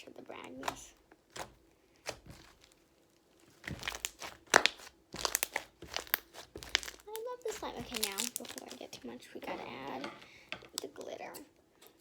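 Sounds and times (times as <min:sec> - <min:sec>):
slime crackling and popping: 0:00.4 - 0:09.2.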